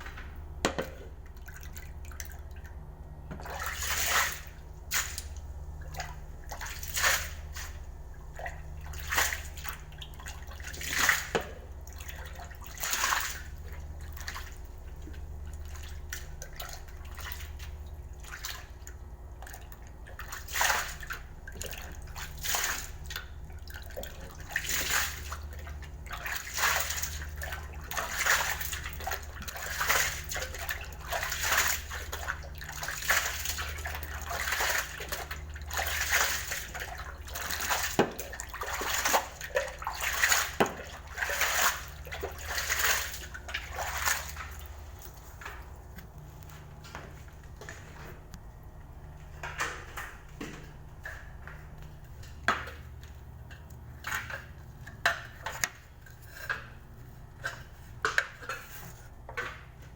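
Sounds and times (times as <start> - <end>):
low machine hum: 0.0 - 59.9
water splashing in surges: 3.4 - 7.8, 19.4 - 45.6.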